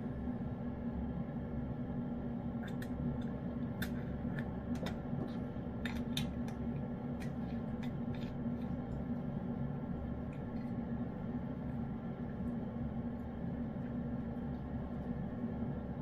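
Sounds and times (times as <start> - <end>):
low hum: 0.0 - 16.0
cat eating from a dish: 2.6 - 15.2.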